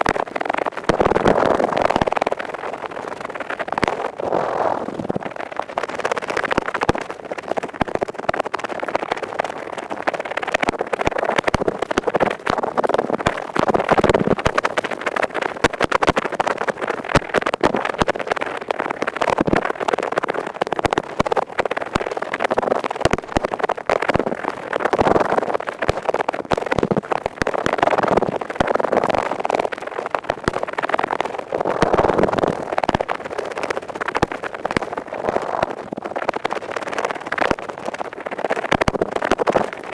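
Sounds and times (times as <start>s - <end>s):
earpick scratching: 4.0s - 5.2s, 34.8s - 36.0s.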